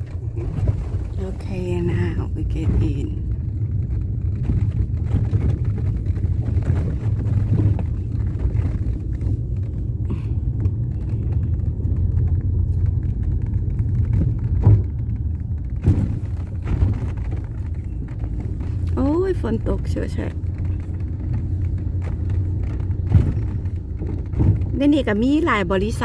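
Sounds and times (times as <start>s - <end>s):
vehicle rumble from inside: 0.0s - 26.0s
thump: 15.7s - 17.3s.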